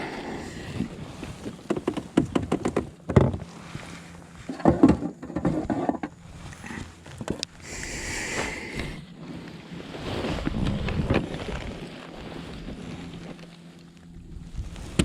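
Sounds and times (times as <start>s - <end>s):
wind on microphone: 0.0s - 2.7s, 5.6s - 13.4s, 14.1s - 15.0s.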